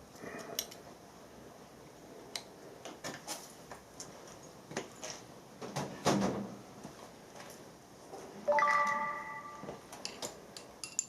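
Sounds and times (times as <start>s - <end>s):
metallic clicks and taps: 10.0s - 11.0s.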